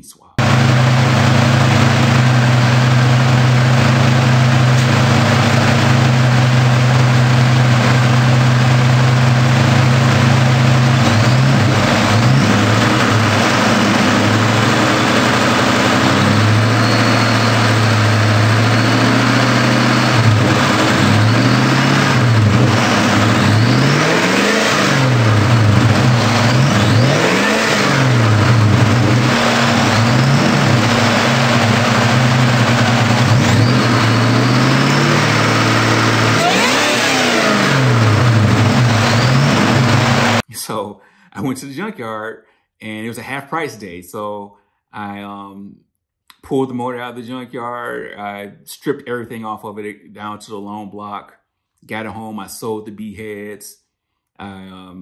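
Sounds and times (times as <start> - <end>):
car engine idling and revving: 0.4 - 40.4.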